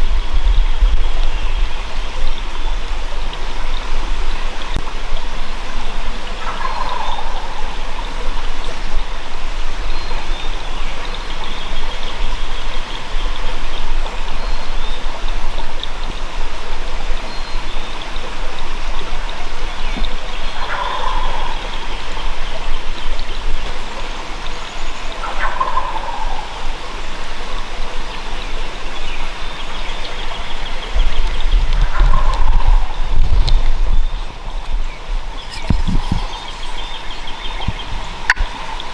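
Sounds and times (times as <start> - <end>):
turkey gobbling: 6.4 - 7.7, 20.6 - 21.6, 25.2 - 26.6, 31.7 - 33.6.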